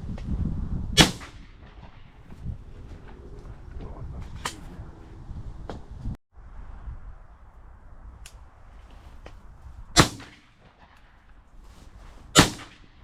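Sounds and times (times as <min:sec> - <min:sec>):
shotgun shots with echo: 0:01.0 - 0:02.1, 0:10.0 - 0:10.9, 0:12.4 - 0:13.0.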